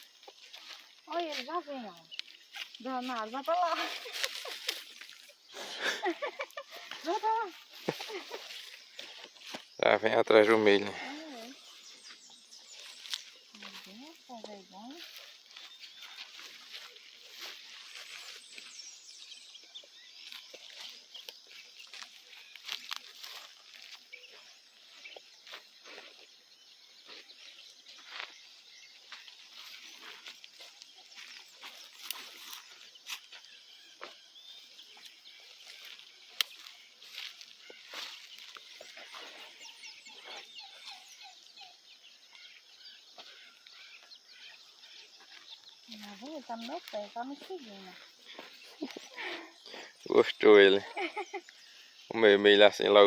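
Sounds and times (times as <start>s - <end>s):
high bird chirps: 11.4s - 52.6s.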